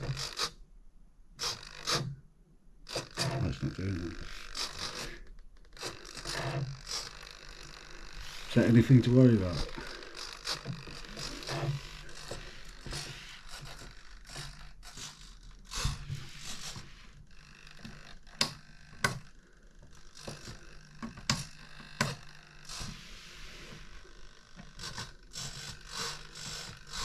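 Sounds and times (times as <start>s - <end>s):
servos buzzing: 1.4s - 2.2s, 2.8s - 27.0s
small clicks and knocks: 17.7s - 22.8s.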